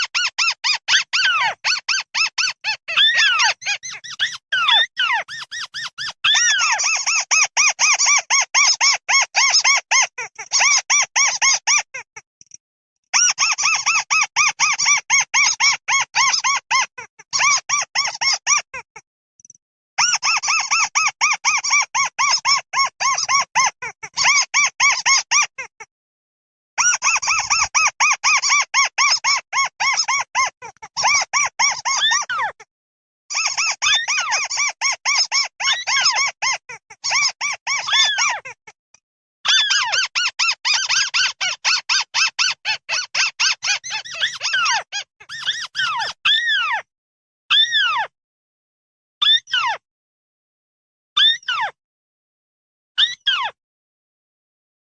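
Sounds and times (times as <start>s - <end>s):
birds squeaky chirping: 0.0s - 12.0s, 13.2s - 18.6s, 20.0s - 25.6s, 26.8s - 32.6s, 33.3s - 38.6s, 39.5s - 46.8s.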